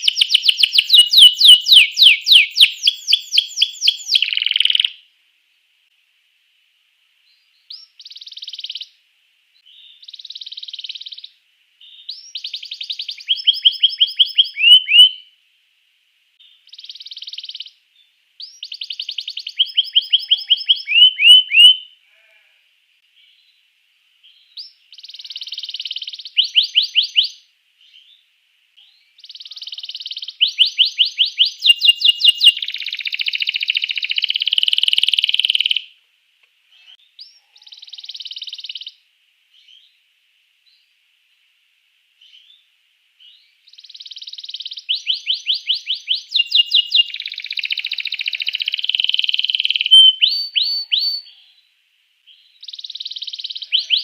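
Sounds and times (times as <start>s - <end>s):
canary singing: 0.0s - 5.0s, 9.6s - 15.3s, 18.4s - 22.4s, 24.3s - 28.2s, 28.9s - 35.9s, 36.8s - 39.0s, 43.2s - 51.4s, 52.3s - 54.0s.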